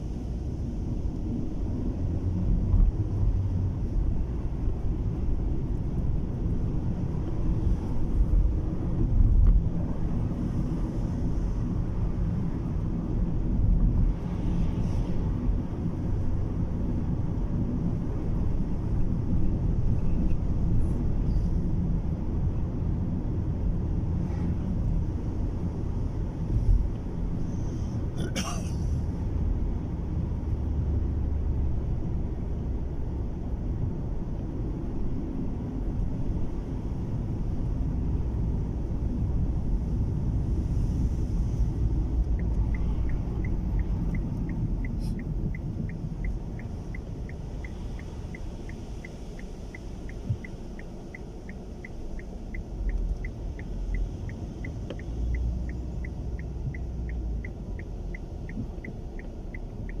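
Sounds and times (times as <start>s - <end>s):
car road and wind rumble: 0.0s - 60.0s
turn signal ticking: 29.2s - 60.0s.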